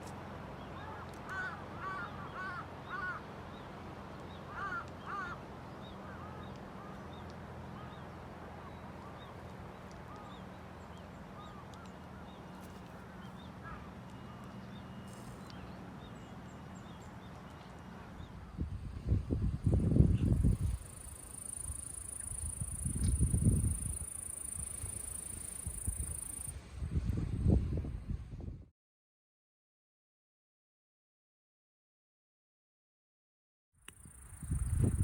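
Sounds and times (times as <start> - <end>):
crow cawing: 0.8 - 3.2, 4.5 - 5.4.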